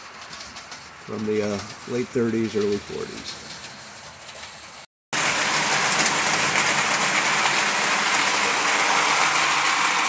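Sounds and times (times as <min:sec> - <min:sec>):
wheels rolling on rails: 0:00.0 - 0:10.0
model train motor whirring: 0:05.2 - 0:10.0.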